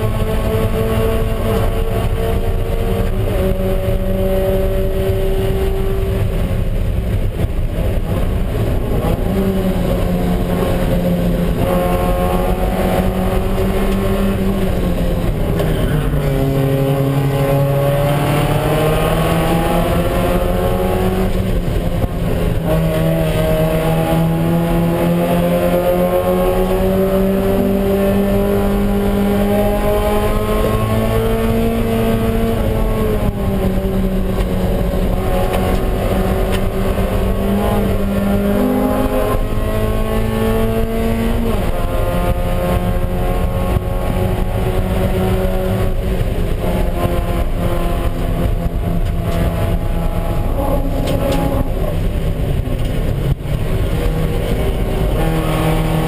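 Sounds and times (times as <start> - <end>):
race car engine running hard: 0.0 - 56.0.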